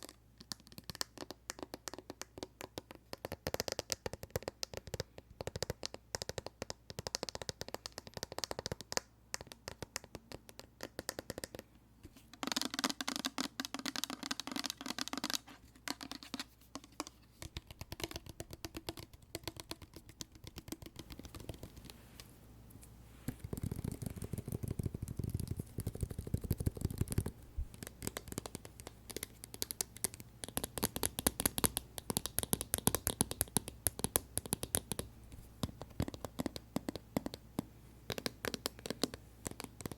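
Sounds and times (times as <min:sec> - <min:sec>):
tapping and pressing on slime: 0:00.0 - 0:11.6, 0:12.4 - 0:22.0, 0:23.4 - 0:39.9.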